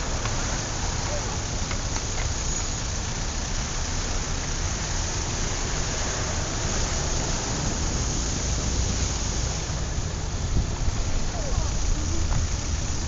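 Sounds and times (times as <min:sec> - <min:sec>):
wind buffeting microphone: 0:09.7 - 0:13.0.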